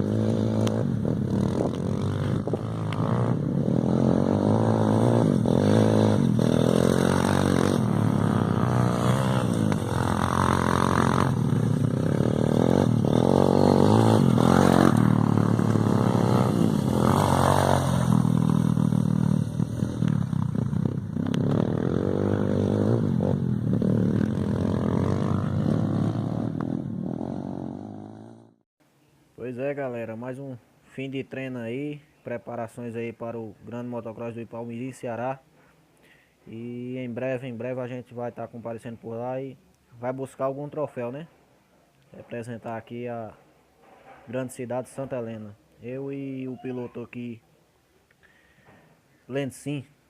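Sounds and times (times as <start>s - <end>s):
motocross bike engine revving: 0.0s - 28.6s.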